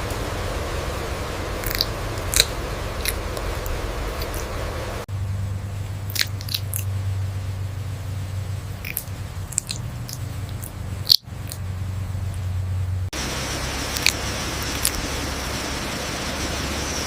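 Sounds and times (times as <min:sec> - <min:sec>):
low hum and hiss: 0:00.0 - 0:17.0
sharp crunching clicks: 0:01.6 - 0:04.6, 0:06.0 - 0:06.9, 0:08.8 - 0:11.6.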